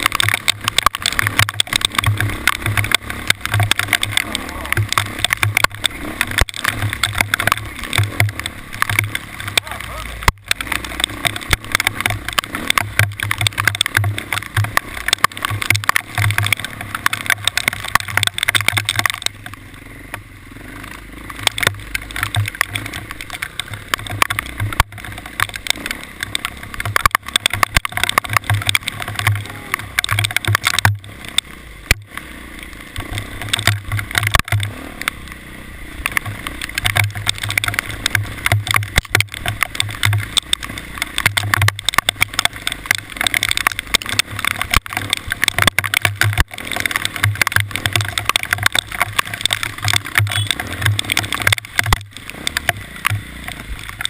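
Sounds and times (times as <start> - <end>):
vehicle rattling and knocking: 0.0 - 54.0.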